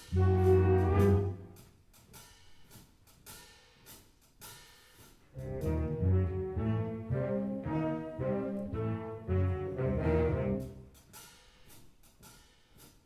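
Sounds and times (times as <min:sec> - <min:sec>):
concert wind band playing: 0:00.0 - 0:01.6, 0:05.4 - 0:10.9.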